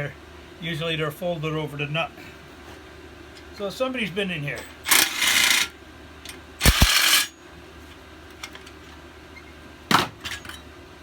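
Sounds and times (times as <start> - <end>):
metal tools clattering: 6.6 - 7.3.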